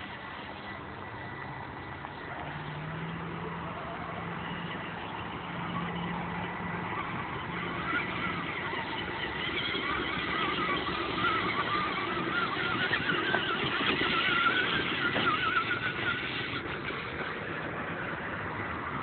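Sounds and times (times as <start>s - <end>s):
electric motors whining: 0.0s - 19.0s.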